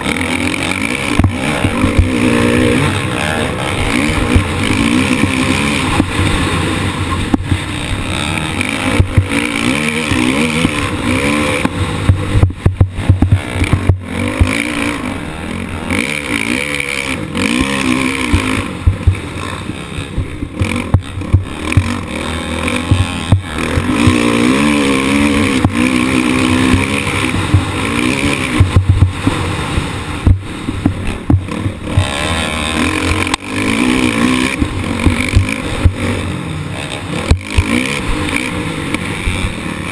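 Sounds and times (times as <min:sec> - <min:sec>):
motocross bike engine revving: 0:00.0 - 0:39.9
sharp knocks: 0:01.0 - 0:02.2, 0:11.5 - 0:14.6.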